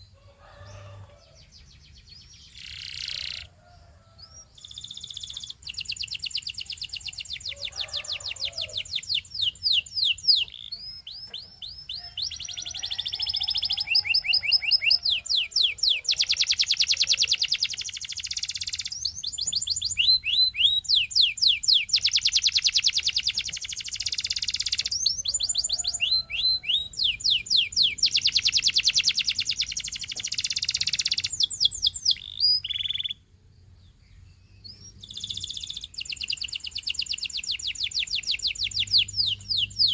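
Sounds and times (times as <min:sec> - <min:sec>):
canary singing trills: 0:00.0 - 0:33.3, 0:33.9 - 0:39.9.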